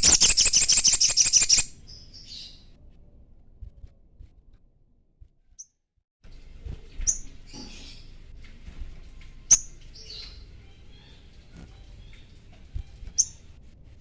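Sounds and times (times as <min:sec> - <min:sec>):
scratchy bird chatter: 0:00.0 - 0:01.7
songbird chirping: 0:00.0 - 0:02.7.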